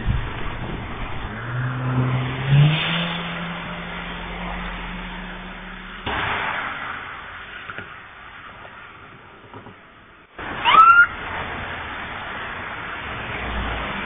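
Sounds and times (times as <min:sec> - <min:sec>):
car engine revving: 0:00.0 - 0:08.4
traffic hiss: 0:02.6 - 0:14.0.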